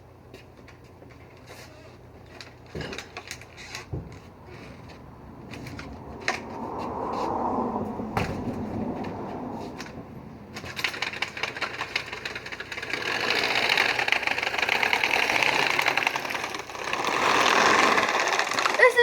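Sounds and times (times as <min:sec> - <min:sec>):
rapid mechanical rattling: 0:10.5 - 0:19.0.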